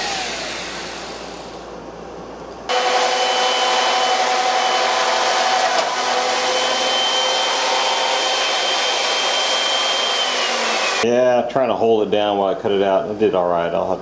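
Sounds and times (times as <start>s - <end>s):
electric motor whining: 0.0s - 1.6s, 2.7s - 11.0s.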